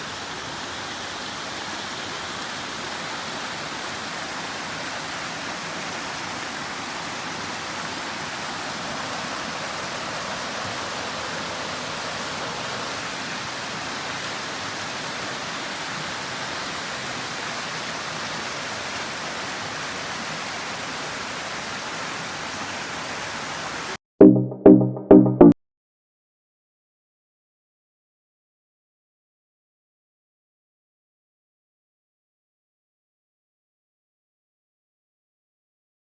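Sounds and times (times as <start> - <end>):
water rushing: 0.0 - 24.0.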